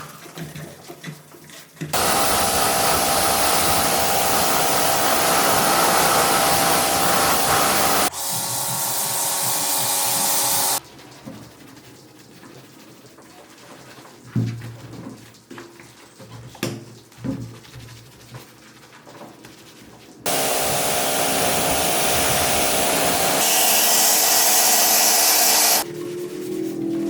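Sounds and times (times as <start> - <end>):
air tool hissing: 2.0 - 10.8, 20.3 - 25.8.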